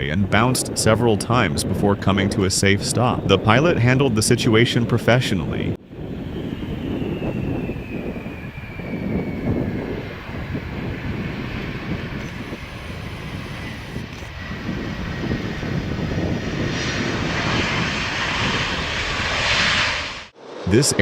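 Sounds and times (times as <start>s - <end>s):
wind rumble on microphone: 0.0s - 19.8s
jet engines whining: 5.4s - 21.0s
loud rushing noise: 18.0s - 21.0s.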